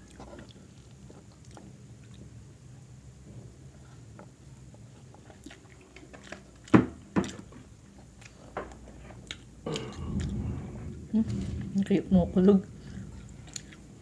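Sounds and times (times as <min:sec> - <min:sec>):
person chewing: 0:00.0 - 0:02.3, 0:03.8 - 0:11.1, 0:12.8 - 0:14.0.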